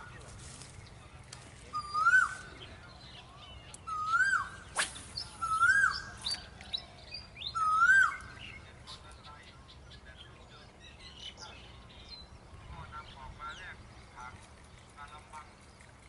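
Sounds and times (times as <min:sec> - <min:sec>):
bird whistle call: 0:01.7 - 0:02.6, 0:03.8 - 0:06.5, 0:07.5 - 0:08.4.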